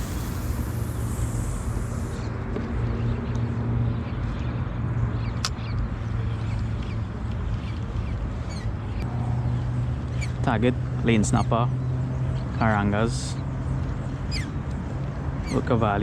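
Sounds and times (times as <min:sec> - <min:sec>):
open water rumble and hiss: 0:00.0 - 0:03.0.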